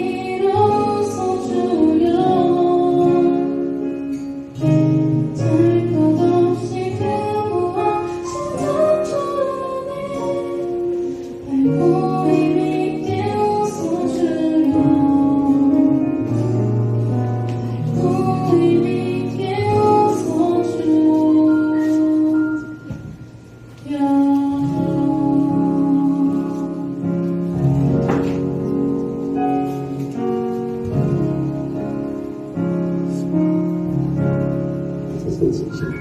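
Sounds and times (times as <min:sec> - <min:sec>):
woman singing: 0:00.0 - 0:16.6, 0:17.8 - 0:22.9, 0:23.8 - 0:27.5
guitar: 0:00.0 - 0:36.0.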